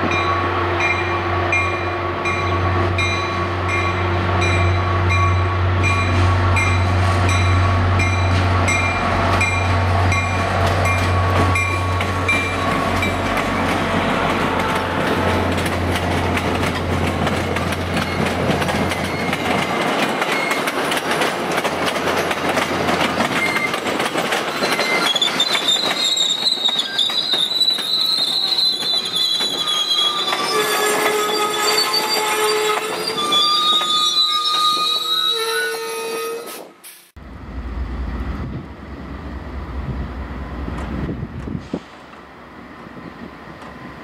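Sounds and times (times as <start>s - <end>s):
train wheels clicking over rail joints: 5.8s - 34.9s
train wheels squealing: 18.0s - 20.8s, 23.3s - 36.7s.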